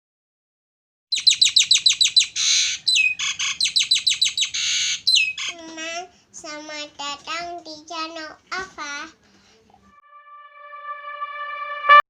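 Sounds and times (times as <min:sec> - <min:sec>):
starling singing: 0:01.2 - 0:05.6.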